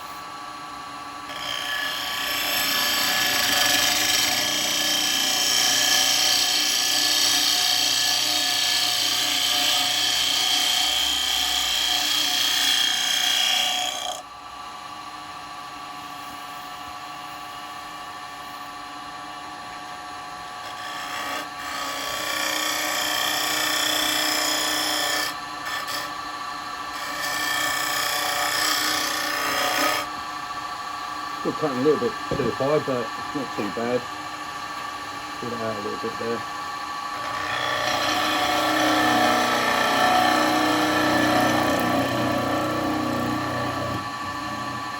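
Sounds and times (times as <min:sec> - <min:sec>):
lathe humming: 0:00.0 - 0:14.6, 0:20.4 - 0:44.9.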